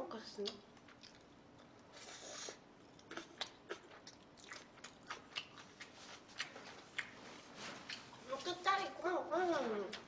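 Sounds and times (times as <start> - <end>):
person chewing food: 0.4 - 8.3.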